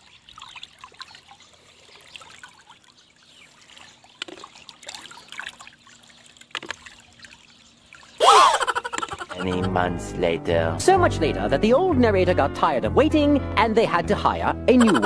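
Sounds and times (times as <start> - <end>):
river water trickling over pebbles: 0.0 - 8.2.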